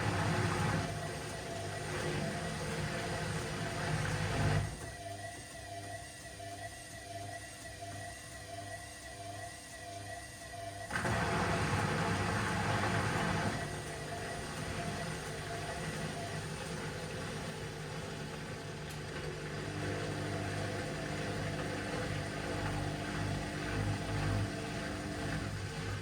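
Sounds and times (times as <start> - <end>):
washing machine motor hum: 0.0 - 5.0, 10.9 - 26.0.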